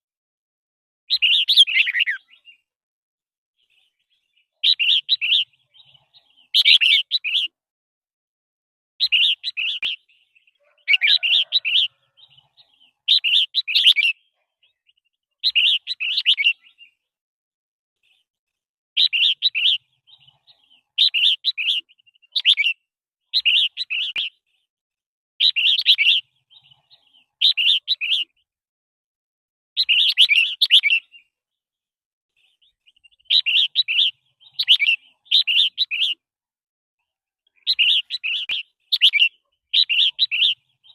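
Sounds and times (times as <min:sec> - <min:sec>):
bird singing short phrases: 0:01.1 - 0:02.7, 0:03.6 - 0:07.6, 0:09.0 - 0:17.1, 0:19.0 - 0:24.7, 0:25.4 - 0:28.5, 0:29.8 - 0:31.6, 0:32.4 - 0:36.2, 0:37.4 - 0:40.9.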